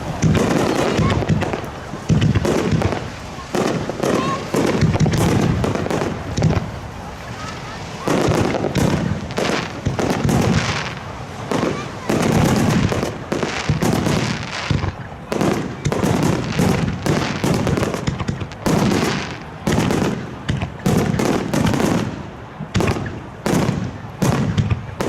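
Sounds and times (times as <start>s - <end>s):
firework shells bursting: 0.0s - 6.8s.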